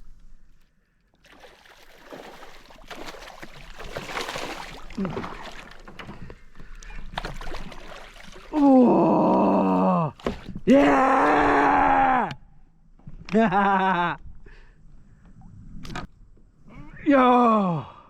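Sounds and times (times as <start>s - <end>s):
water sloshing: 0.1s - 10.8s.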